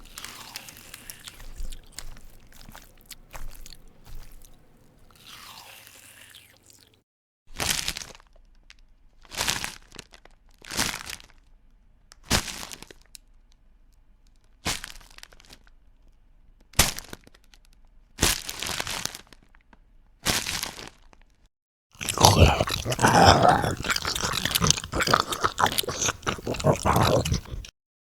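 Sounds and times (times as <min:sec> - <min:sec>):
crisp food crunching: 0:00.0 - 0:06.9, 0:22.0 - 0:27.7.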